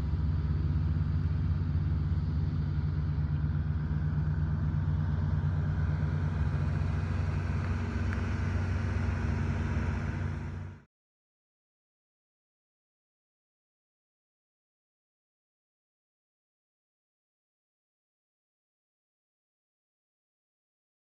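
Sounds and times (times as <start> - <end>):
car engine running: 0.0 - 10.8.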